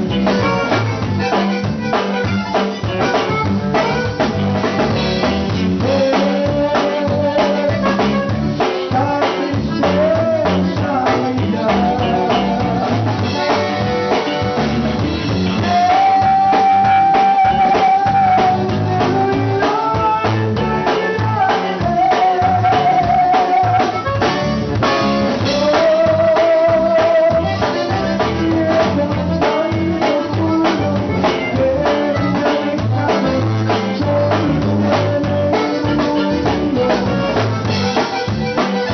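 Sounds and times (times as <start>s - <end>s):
accordion held melody notes: 0.0s - 38.9s
band playing instrumental: 0.0s - 38.9s
drum kit beat: 0.0s - 38.9s.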